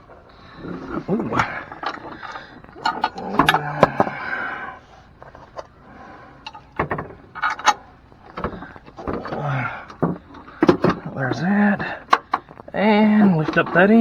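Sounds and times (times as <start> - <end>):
sharp metal knocks and clicks: 6.4 - 12.7.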